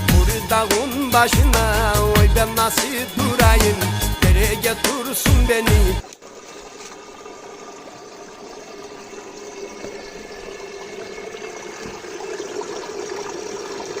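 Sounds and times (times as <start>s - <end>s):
creek water splashing over stones: 6.0s - 14.0s.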